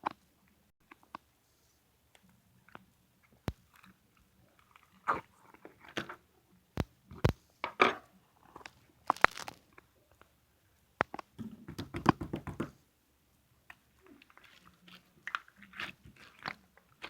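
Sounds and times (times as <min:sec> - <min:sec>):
slime squelching: 0:13.7 - 0:17.0.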